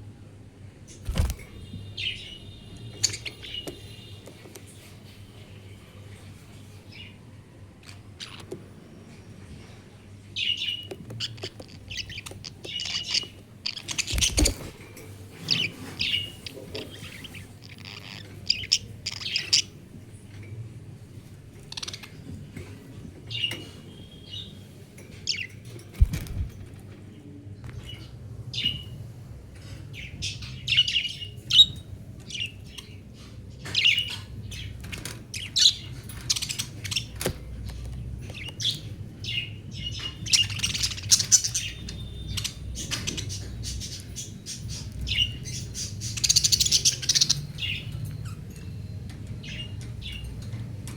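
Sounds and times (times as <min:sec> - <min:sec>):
budgerigars chirping: 0:00.9 - 0:04.8, 0:10.4 - 0:19.8, 0:21.6 - 0:22.2, 0:25.2 - 0:26.3, 0:27.9 - 0:29.0, 0:29.6 - 0:48.6, 0:49.4 - 0:50.6.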